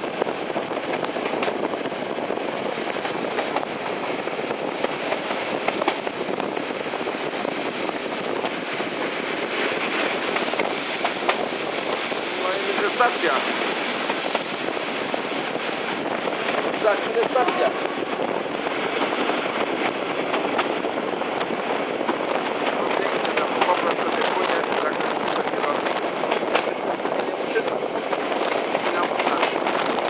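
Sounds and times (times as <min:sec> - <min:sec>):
train wheels rumbling on rails: 0:00.0 - 0:30.0
high wheel squeal: 0:09.7 - 0:17.8.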